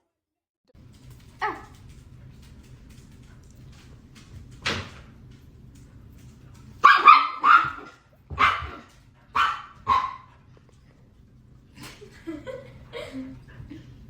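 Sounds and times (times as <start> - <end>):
dog barking: 6.8 - 10.4.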